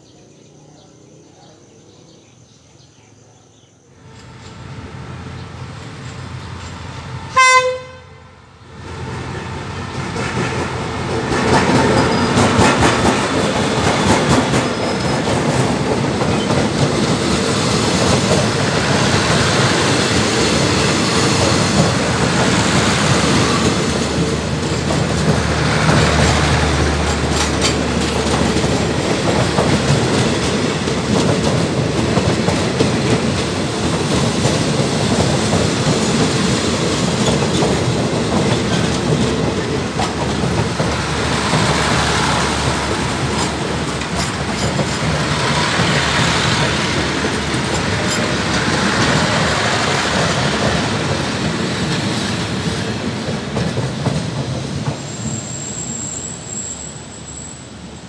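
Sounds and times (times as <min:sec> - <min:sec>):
train rumbling past: 0:00.0 - 0:58.0
wheels clicking over rail joints: 0:10.0 - 0:55.1.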